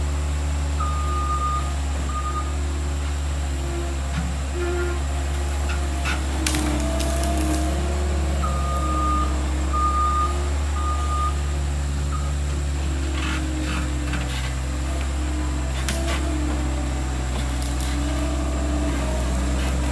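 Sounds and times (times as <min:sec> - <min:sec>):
skid steer engine running: 0:00.0 - 0:19.9
reversing alarm beeping: 0:00.8 - 0:02.6, 0:07.6 - 0:12.8.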